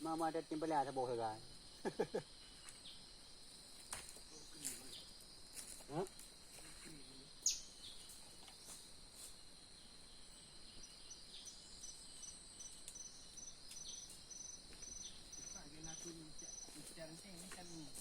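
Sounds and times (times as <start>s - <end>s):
insects shrilling: 0.0s - 18.0s
short evenly spaced chirps: 10.2s - 17.9s.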